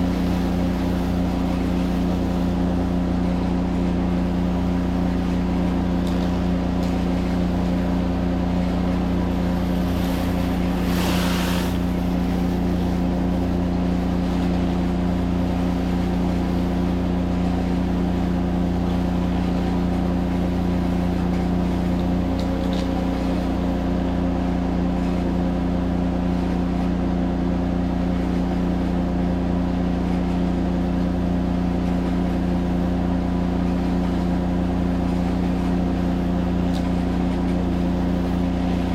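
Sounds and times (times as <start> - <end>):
pressure washer engine running: 0.0 - 26.4
rush of hiss: 10.8 - 11.8.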